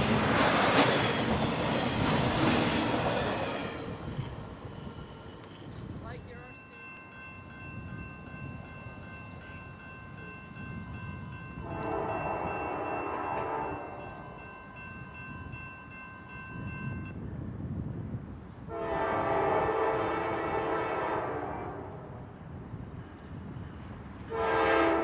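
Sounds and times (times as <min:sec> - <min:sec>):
diesel locomotive engine rumbling: 0:00.0 - 0:25.0
train air horn blast: 0:11.6 - 0:14.0, 0:18.7 - 0:22.0, 0:24.3 - 0:25.0.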